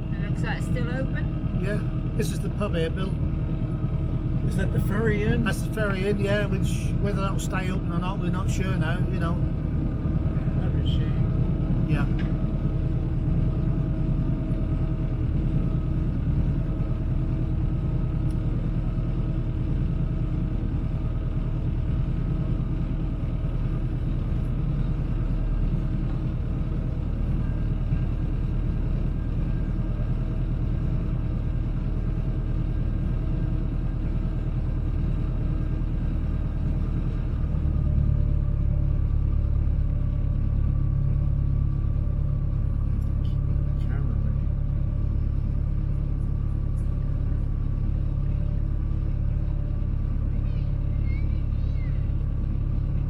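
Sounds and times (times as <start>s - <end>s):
boat engine rumbling: 0.0s - 53.0s.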